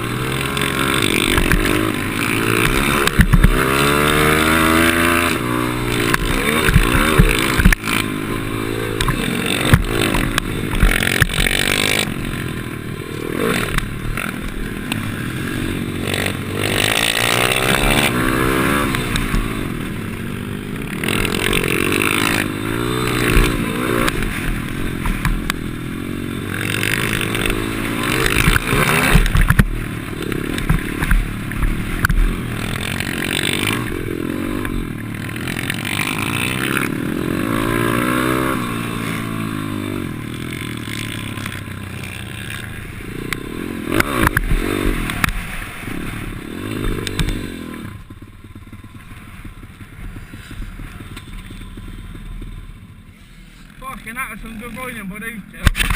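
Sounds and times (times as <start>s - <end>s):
pit bike engine revving: 0.0s - 55.9s
sharp knocks and clatter: 0.4s - 8.2s, 9.0s - 12.1s, 26.5s - 33.9s.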